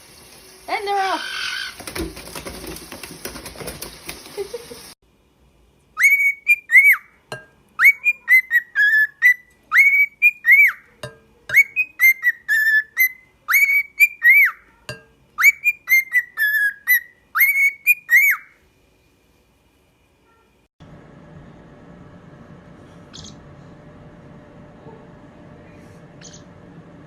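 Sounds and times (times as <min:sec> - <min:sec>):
parrot whistling a tune: 0:06.0 - 0:07.2, 0:07.8 - 0:10.9, 0:11.5 - 0:14.6, 0:15.4 - 0:18.6.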